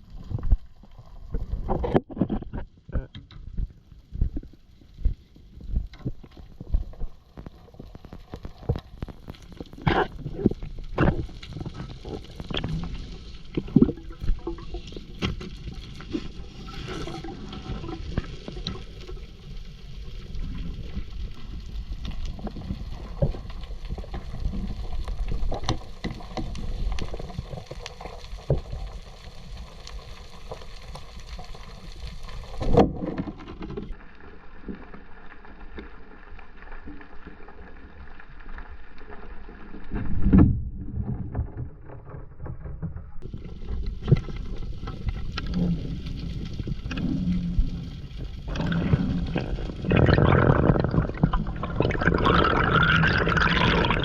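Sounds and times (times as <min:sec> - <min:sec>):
water gurgling: 0:00.0 - 0:33.5, 0:39.1 - 0:54.0.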